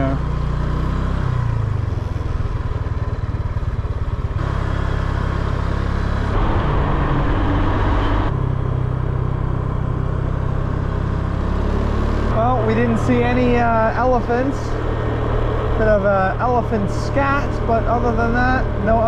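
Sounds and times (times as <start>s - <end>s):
scooter engine running: 0.0s - 19.0s
wind and road noise: 0.0s - 19.0s.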